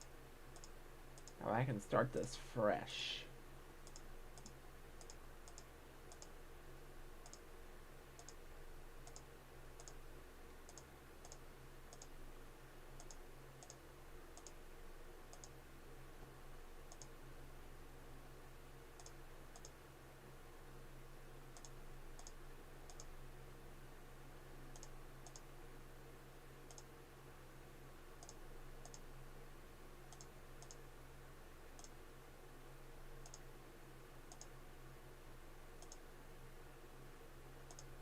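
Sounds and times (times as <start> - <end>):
computer mouse clicks: 0.0 - 1.4, 3.8 - 6.4, 7.2 - 7.5, 8.2 - 8.4, 9.0 - 10.0, 10.7 - 12.1, 13.0 - 13.8, 14.4 - 14.6, 15.3 - 15.6, 16.9 - 17.2, 19.0 - 19.8, 21.6 - 23.1, 24.7 - 25.5, 26.7 - 26.9, 28.2 - 29.1, 30.1 - 30.8, 31.8 - 32.0, 33.2 - 33.4, 34.3 - 34.6, 35.8 - 36.0, 37.7 - 38.0
low steady hum: 0.0 - 38.0.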